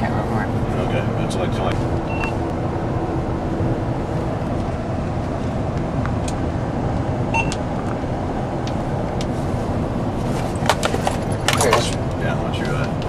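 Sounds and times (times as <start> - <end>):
car road and engine noise: 0.0 - 13.0
short high beep: 7.3 - 7.6.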